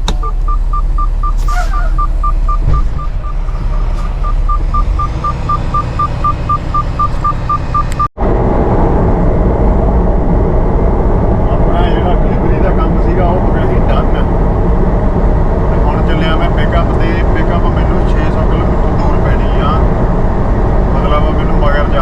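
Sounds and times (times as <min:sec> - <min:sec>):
low engine rumble: 0:00.0 - 0:22.0
rapid electronic warning beeper: 0:00.1 - 0:07.9.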